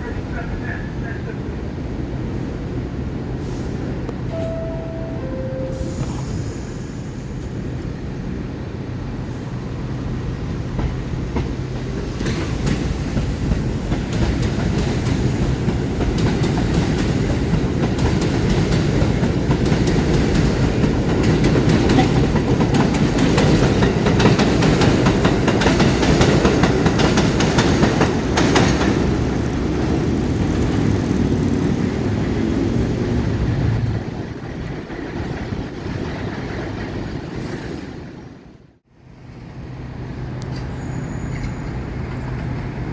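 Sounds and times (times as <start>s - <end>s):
train rumbling on elevated track: 0.0s - 42.9s
clickety-clack over rail joints: 9.9s - 38.1s, 40.4s - 42.9s.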